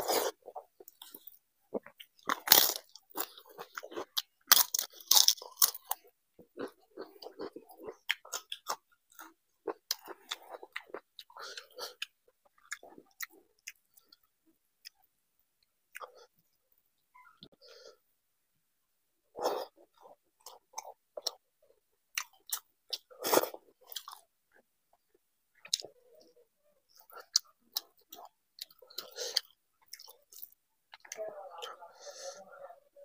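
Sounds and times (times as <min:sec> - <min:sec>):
crunchy chewing: 0:00.0 - 0:15.0, 0:22.1 - 0:26.3, 0:26.9 - 0:31.2.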